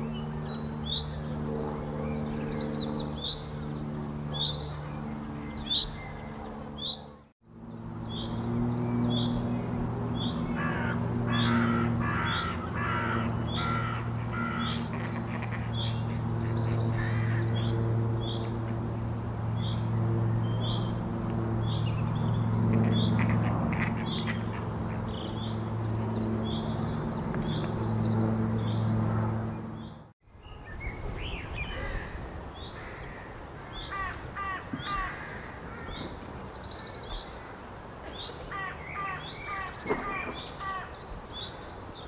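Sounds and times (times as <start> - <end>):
steady low hum: 0.0 - 30.2
harsh caw-like bird call: 10.5 - 15.2, 16.6 - 17.5, 31.7 - 36.2, 38.5 - 41.0.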